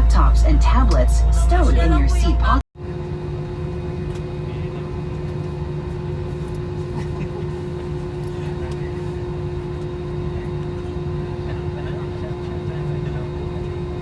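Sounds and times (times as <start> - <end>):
aircraft cabin hum: 0.0 - 2.6
steady mid-pitched tone: 0.0 - 2.6.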